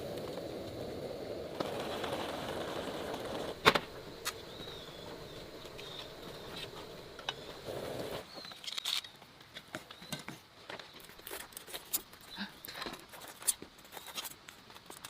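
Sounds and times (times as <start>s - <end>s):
steady low hum: 0.0s - 8.2s
rustles: 0.0s - 15.0s.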